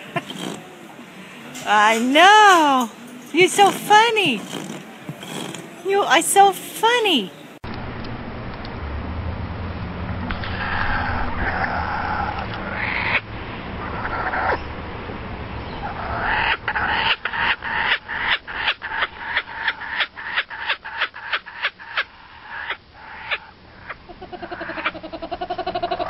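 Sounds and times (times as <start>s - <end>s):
animal giving short harsh calls: 3.6s - 5.8s.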